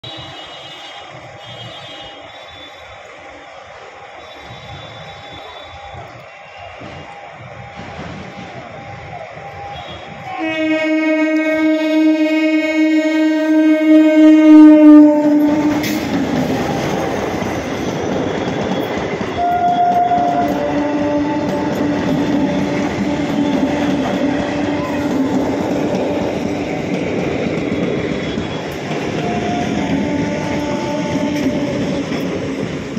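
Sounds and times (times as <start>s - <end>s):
train horn blast: 0.0s - 3.0s, 4.2s - 6.7s, 9.7s - 16.1s, 19.3s - 26.3s, 28.2s - 32.1s
train wheels rumbling and clattering: 0.0s - 13.1s, 13.7s - 32.9s.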